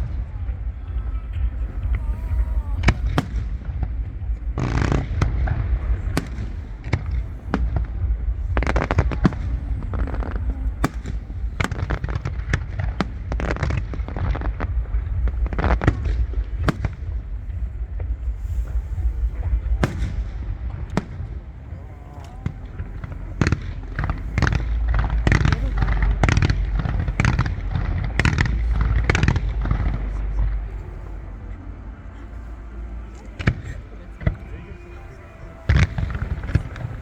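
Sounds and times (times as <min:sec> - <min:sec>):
fireworks banging and crackling: 0:00.0 - 0:31.4, 0:33.1 - 0:37.0
steady low rumble: 0:00.0 - 0:37.0.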